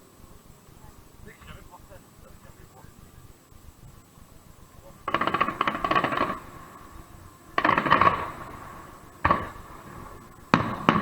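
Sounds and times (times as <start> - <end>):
fireworks crackling: 0.0 - 11.0
firework bang: 4.8 - 11.0.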